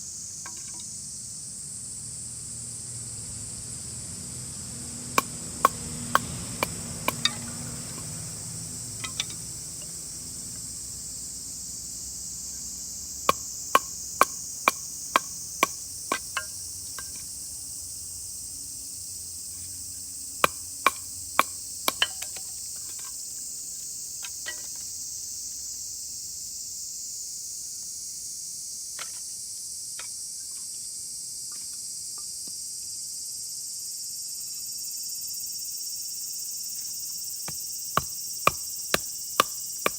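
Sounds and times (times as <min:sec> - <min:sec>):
insects droning: 0:00.0 - 0:39.9
knife batoning through firewood: 0:13.3 - 0:17.3, 0:20.4 - 0:22.5, 0:37.5 - 0:39.9.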